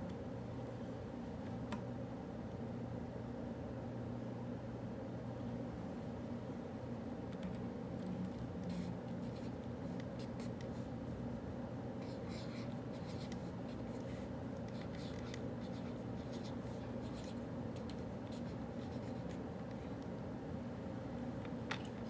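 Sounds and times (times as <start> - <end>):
low room hum: 0.0 - 22.0
pen scratching on paper: 12.0 - 17.4.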